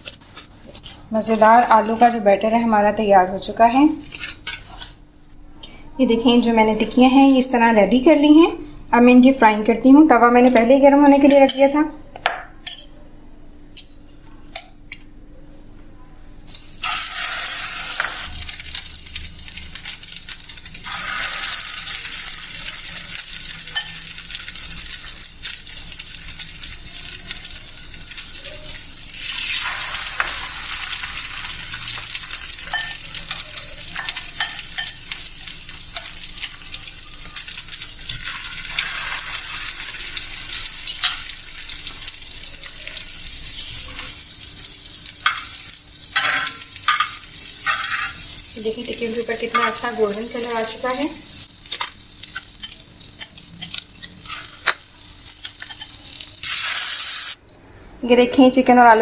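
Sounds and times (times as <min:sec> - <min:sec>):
food sizzling in oil: 0:00.0 - 0:02.6, 0:16.5 - 0:57.4.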